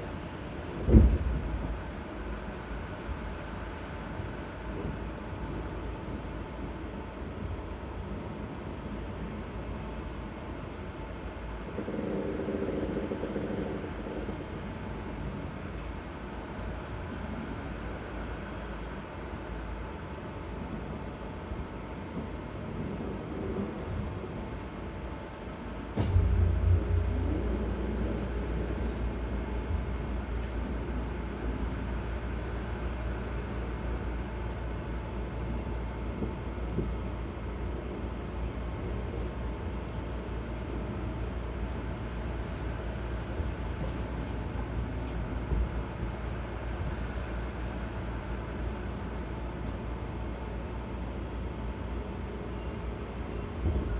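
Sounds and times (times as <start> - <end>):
electric train rolling rumble: 0.0 - 53.9
loud hum: 26.0 - 51.4
faint high whine: 26.0 - 51.5.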